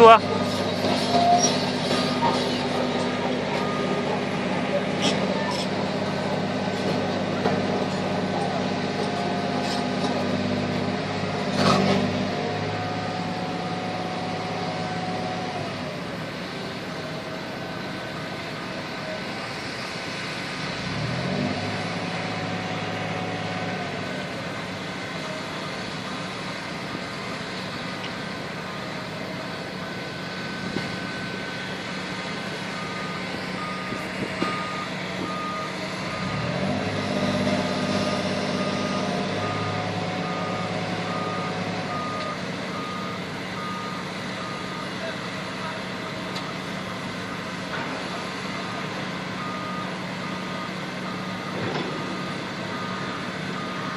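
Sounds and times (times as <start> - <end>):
reversing alarm beeping: 0.0 - 6.6, 12.6 - 19.4, 28.5 - 53.9
diesel engine of heavy machinery: 0.0 - 53.9.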